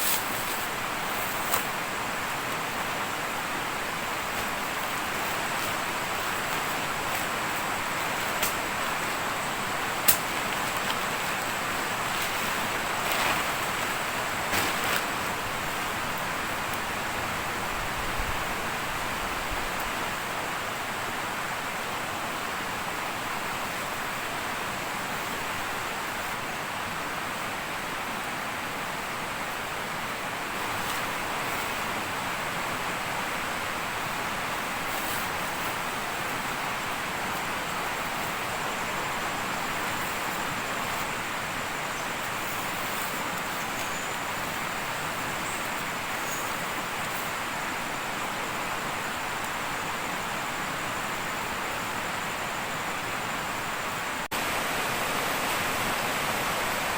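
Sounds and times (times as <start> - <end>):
flowing water rushing: 20.0 - 56.9.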